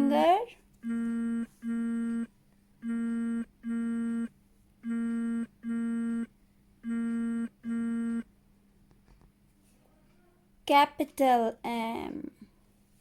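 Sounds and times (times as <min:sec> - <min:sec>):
buzzy alarm beeps: 0:00.8 - 0:06.3, 0:06.9 - 0:08.2.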